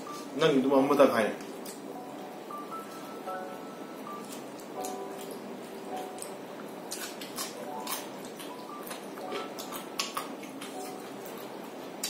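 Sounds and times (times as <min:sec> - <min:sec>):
chewing and lip-smacking: 0:04.2 - 0:12.0.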